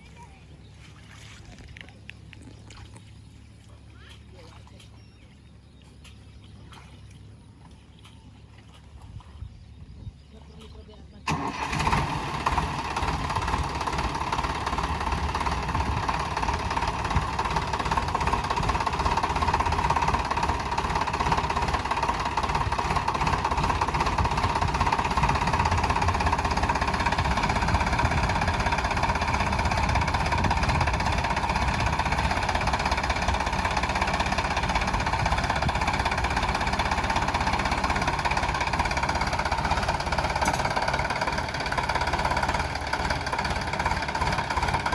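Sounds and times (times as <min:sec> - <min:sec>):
tractor diesel engine running: 0:10.7 - 0:44.9.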